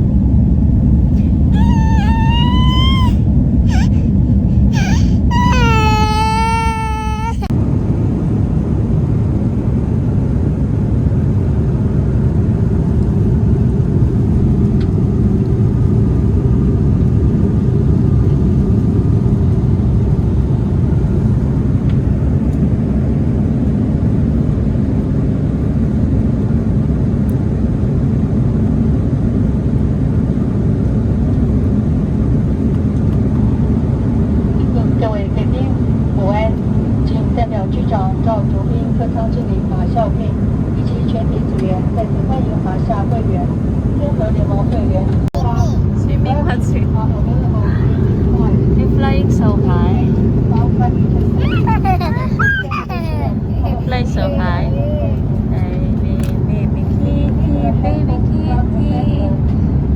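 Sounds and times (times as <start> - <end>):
airliner cabin rumble: 0.0 - 59.9
small child crying: 1.1 - 7.5, 45.4 - 45.9, 51.2 - 55.5.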